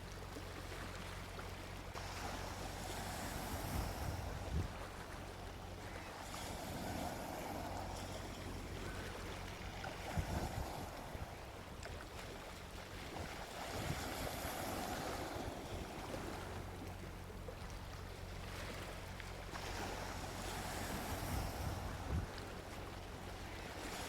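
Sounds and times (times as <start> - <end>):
ocean waves washing onto beach: 0.0 - 24.0.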